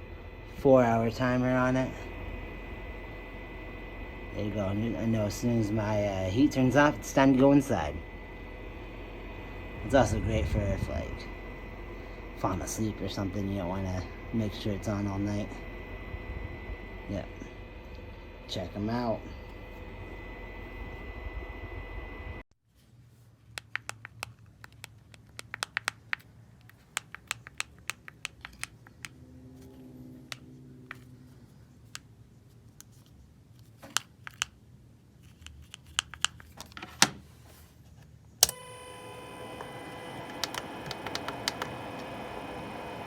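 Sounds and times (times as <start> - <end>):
fan hum with whine: 0.0 - 43.0
keyboard typing clicks: 23.5 - 29.2.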